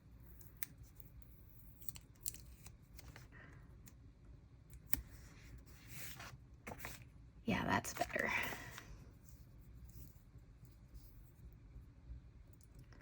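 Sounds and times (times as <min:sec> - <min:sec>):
paper stickers crackling and peeling: 0:00.3 - 0:03.3.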